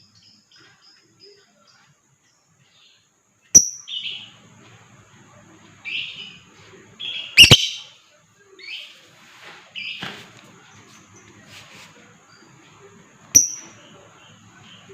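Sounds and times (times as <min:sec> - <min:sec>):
lovebirds chirping: 0:00.0 - 0:09.1, 0:09.7 - 0:14.9
loud sharp bird calls: 0:07.0 - 0:08.0.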